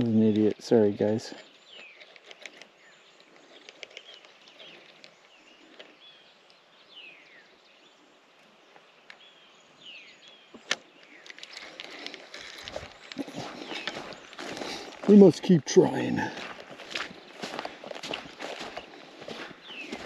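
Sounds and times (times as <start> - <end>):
birds calling with falling whistles: 0.0 - 20.0
faint outdoor background: 0.0 - 20.0
small clicks: 1.8 - 6.6, 10.2 - 14.0.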